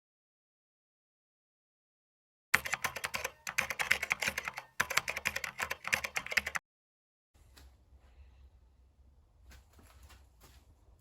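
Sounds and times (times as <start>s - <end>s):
rapid clicking: 2.6s - 6.6s.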